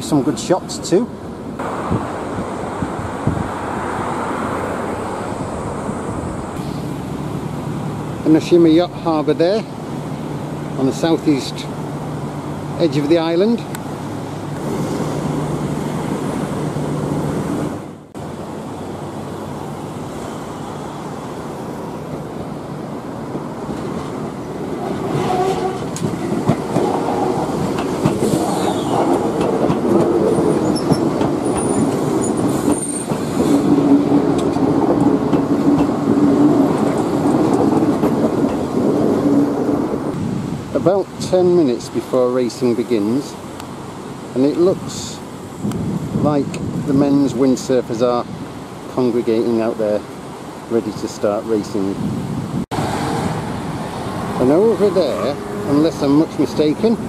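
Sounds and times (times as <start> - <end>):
electric train running past: 13.9 - 40.1, 52.8 - 57.0.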